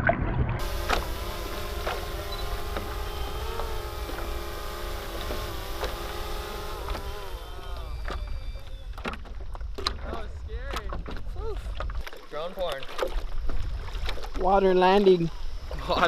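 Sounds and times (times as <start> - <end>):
drone propellers whining: 0.6 - 9.8.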